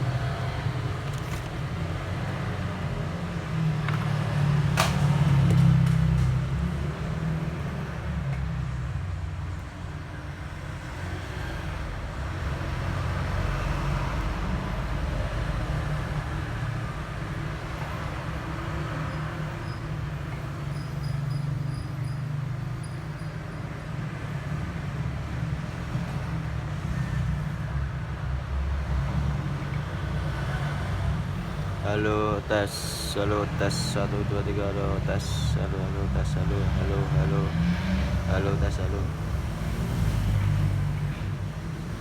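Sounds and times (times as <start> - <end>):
low rumbling background noise: 31.0 - 42.0.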